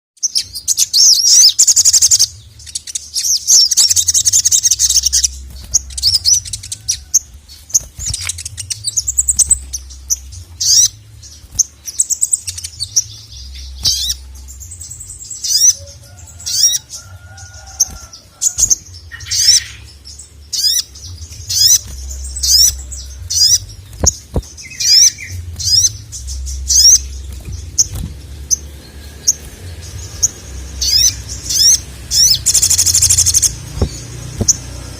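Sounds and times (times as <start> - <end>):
bird chattering trill and chirps: 0.2 - 34.9
low rumble: 18.0 - 34.9.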